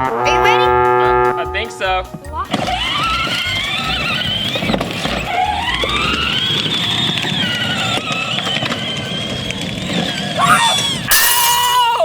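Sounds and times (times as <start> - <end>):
toy vehicle electric motor whining: 2.4 - 12.0.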